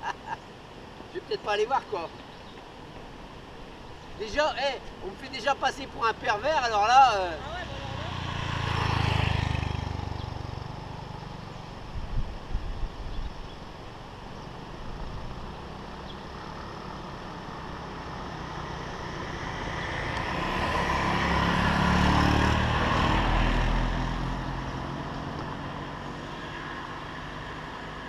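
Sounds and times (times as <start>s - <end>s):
vehicle driving past: 7.2s - 11.7s, 15.0s - 28.0s.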